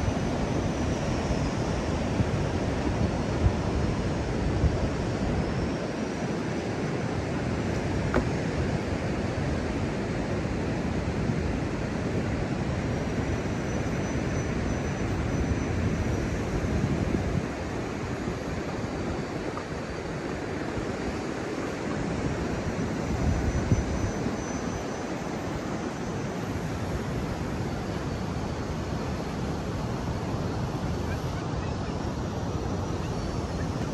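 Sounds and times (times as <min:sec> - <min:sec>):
wind: 0:00.0 - 0:33.9.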